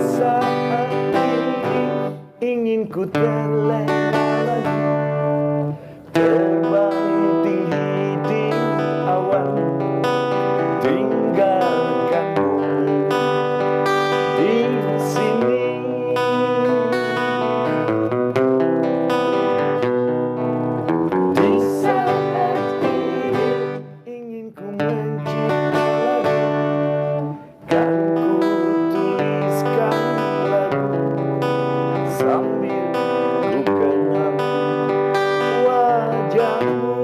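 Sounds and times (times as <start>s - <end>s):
acoustic guitar strumming chords: 0.0s - 37.0s
person singing: 0.0s - 37.0s.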